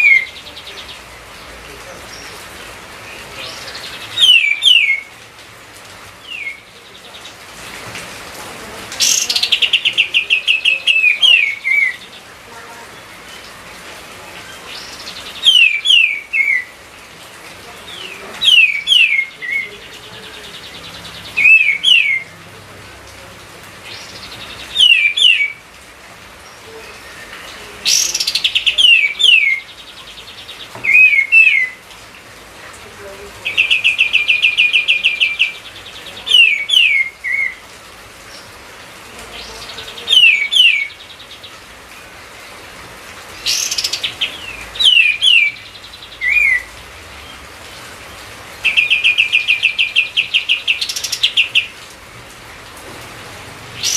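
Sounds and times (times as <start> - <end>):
bird whistling song: 3.8 - 5.1, 14.8 - 16.7, 21.3 - 22.3, 24.4 - 25.6, 30.8 - 31.8, 43.5 - 46.7.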